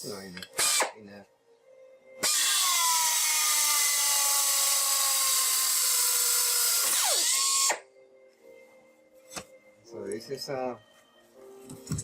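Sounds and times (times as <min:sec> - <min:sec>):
pneumatic drill air hiss and whine: 0:00.6 - 0:00.9, 0:02.2 - 0:07.8.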